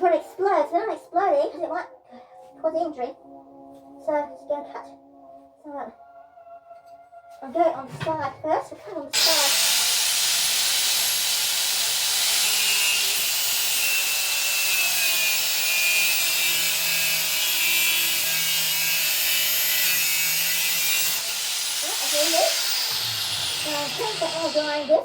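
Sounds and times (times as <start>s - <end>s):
angle grinder cutting steel: 9.2s - 25.0s.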